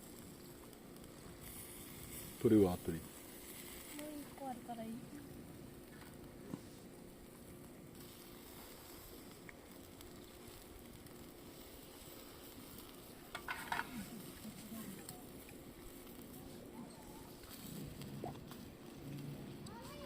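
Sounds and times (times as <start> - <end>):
food sizzling on a grill: 0.0 - 20.0.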